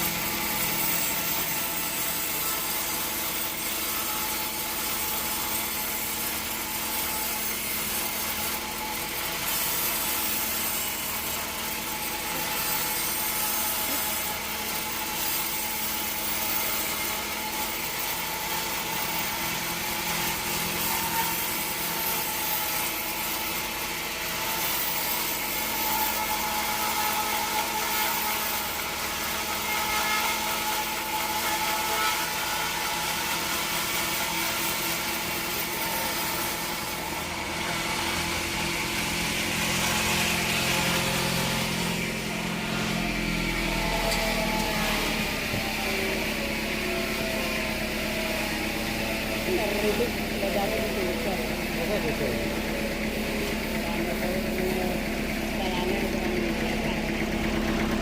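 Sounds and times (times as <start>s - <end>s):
band saw blade cutting log: 0.0s - 58.0s
machine hum: 36.6s - 58.0s.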